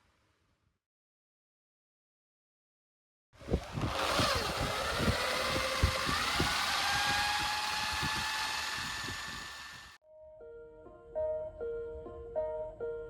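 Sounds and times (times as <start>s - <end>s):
electric motor whining: 3.4s - 10.0s.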